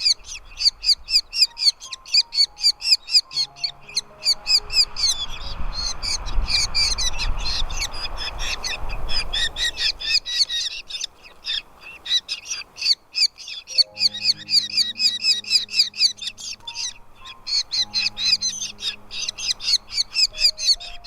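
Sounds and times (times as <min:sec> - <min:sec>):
nestling birds chirping: 0:00.0 - 0:21.0
low rumbling noise: 0:03.2 - 0:10.1.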